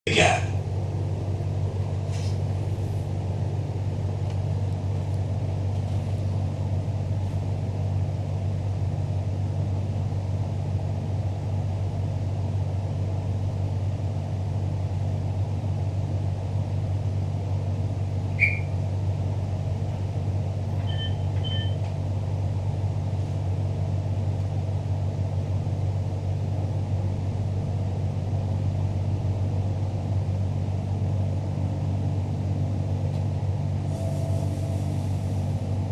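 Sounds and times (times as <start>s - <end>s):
train carriage rumble: 0.1s - 35.9s
brief beeps: 18.4s - 18.7s, 20.9s - 21.8s
sharp squeak: 18.4s - 18.8s, 20.8s - 21.8s.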